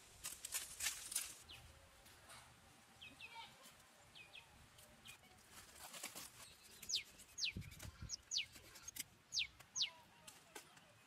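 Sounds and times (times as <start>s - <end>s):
bird high downward chirps: 9.3s - 10.0s.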